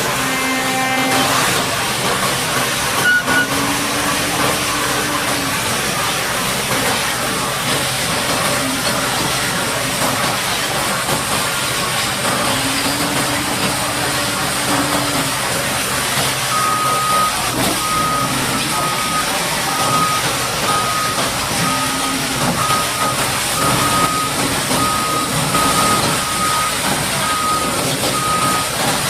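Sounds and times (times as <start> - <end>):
high-pressure water jet spraying: 0.0 - 29.0
low engine note: 0.0 - 29.0
short beeps: 3.0 - 4.9, 16.5 - 28.8.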